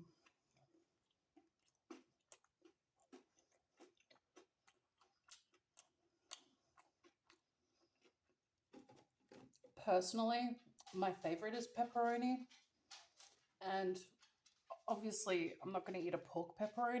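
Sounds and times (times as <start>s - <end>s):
chewing with wet mouth clicks: 0.0s - 9.8s.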